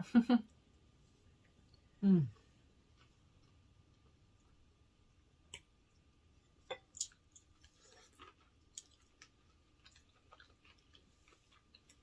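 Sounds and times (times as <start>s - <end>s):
chewing and eating: 5.5s - 12.0s.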